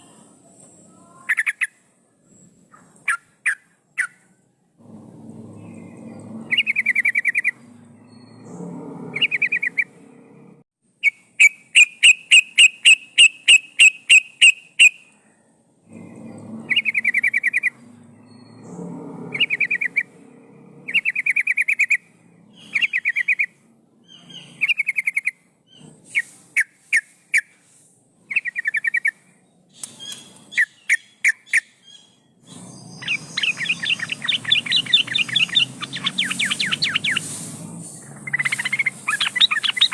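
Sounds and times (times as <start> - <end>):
bulbul singing warbling phrases: 30.1 - 37.4, 38.0 - 39.9.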